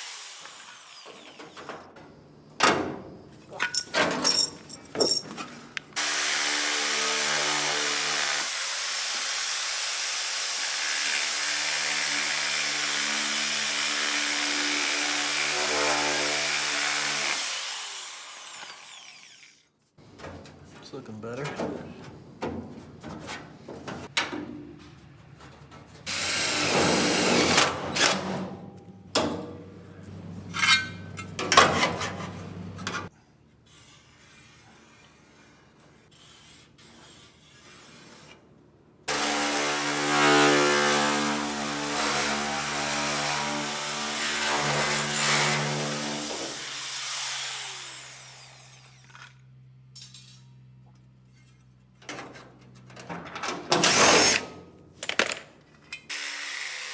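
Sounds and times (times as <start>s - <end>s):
power tool cutting sheet metal: 0.0s - 1.6s, 6.0s - 19.6s, 26.1s - 28.2s, 39.1s - 49.4s, 53.8s - 54.6s, 56.1s - 56.9s.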